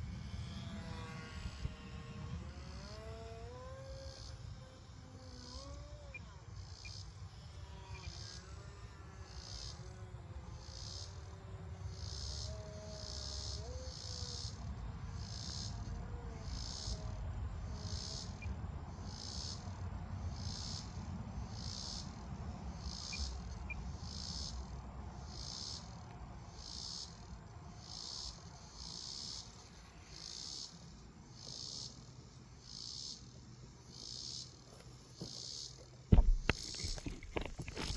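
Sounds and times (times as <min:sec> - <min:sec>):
small electric motor whining: 0:00.0 - 0:14.7
insects chirping: 0:00.0 - 0:37.9.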